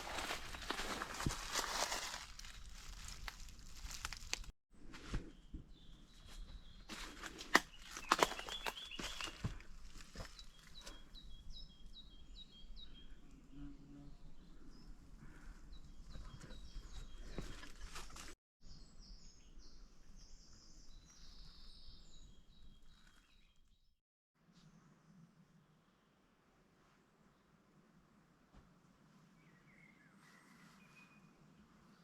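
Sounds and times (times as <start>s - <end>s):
small birds chirping: 5.3s - 18.0s.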